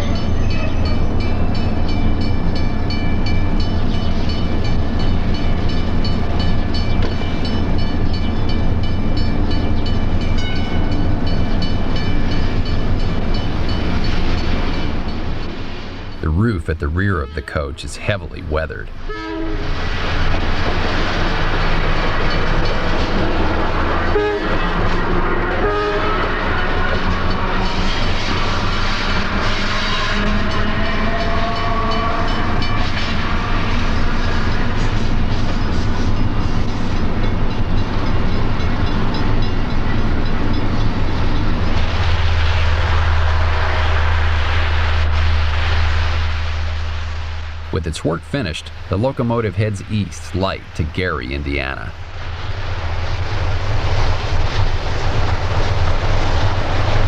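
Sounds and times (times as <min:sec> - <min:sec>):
electric train rumbling on rails: 0:00.0 - 0:57.0
short train horn: 0:19.0 - 0:19.8, 0:24.1 - 0:27.7, 0:29.4 - 0:34.9.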